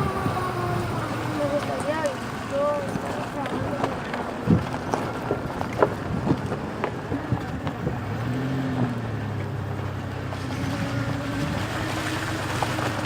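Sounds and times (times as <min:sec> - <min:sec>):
motor humming: 0:00.0 - 0:04.0, 0:09.0 - 0:13.0.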